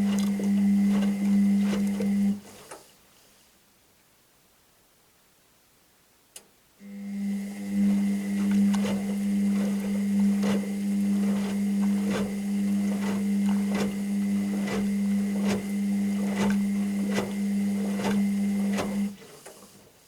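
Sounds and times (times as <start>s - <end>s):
washing machine motor hum: 0.0s - 2.6s, 6.8s - 19.8s.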